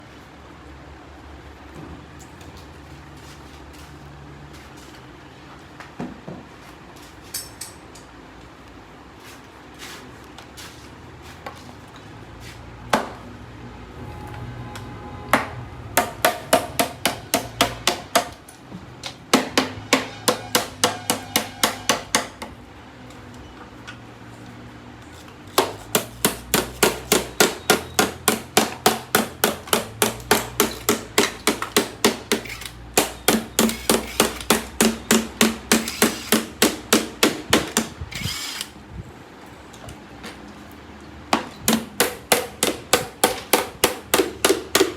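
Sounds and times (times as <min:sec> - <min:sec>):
hammer blows: 0:19.4 - 0:22.4.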